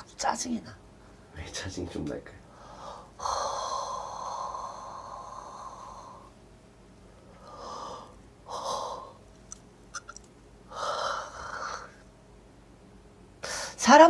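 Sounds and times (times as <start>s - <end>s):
person breathing heavily: 2.5s - 6.3s, 7.3s - 9.2s
faint clicks: 9.3s - 10.4s.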